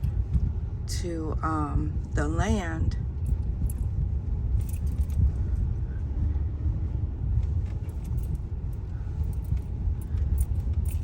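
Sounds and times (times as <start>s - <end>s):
vehicle engine and road noise: 0.0s - 11.0s
small rattles and clicks: 3.2s - 5.4s, 7.4s - 11.0s.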